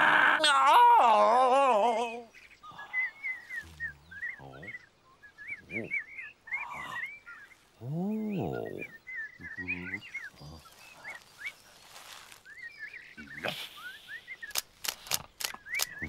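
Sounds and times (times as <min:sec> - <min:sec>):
man groaning: 0:00.0 - 0:02.3
low voice-like sounds: 0:00.0 - 0:04.8, 0:07.8 - 0:11.0.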